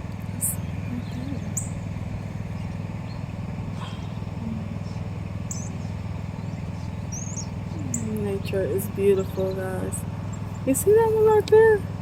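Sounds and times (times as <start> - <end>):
car engine idling: 0.0 - 12.0
small birds chirping: 0.0 - 12.0.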